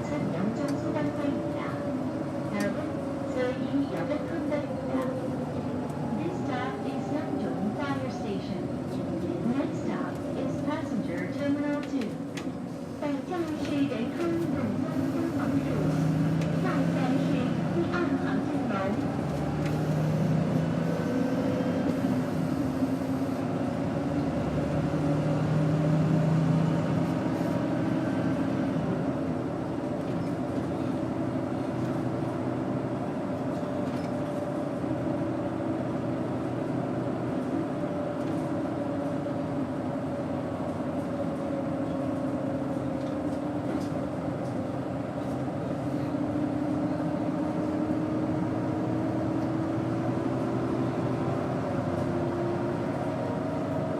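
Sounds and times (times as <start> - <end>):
bus engine running: 0.0 - 53.9.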